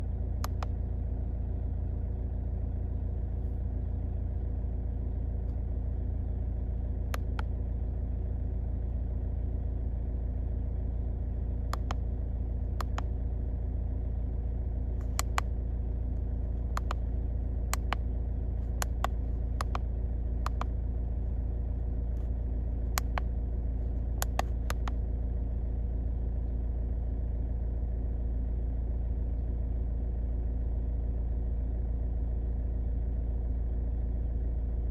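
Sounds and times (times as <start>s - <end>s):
car engine idling: 0.0s - 34.9s
sharp single clicks: 0.4s - 0.8s, 7.2s - 7.5s, 11.7s - 12.0s, 12.8s - 13.1s, 15.0s - 15.6s, 16.7s - 17.0s, 17.7s - 18.0s, 18.7s - 20.8s, 22.9s - 23.3s, 24.2s - 25.0s.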